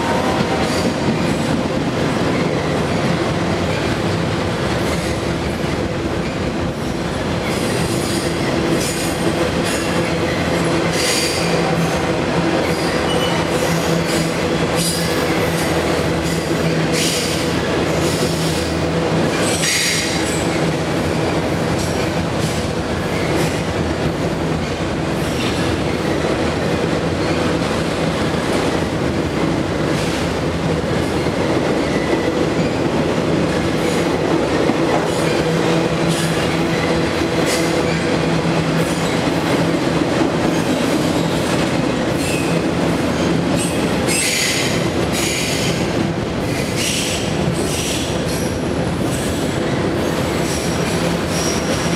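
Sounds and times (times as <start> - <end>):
freight cars rolling on rail: 0.0 - 51.9.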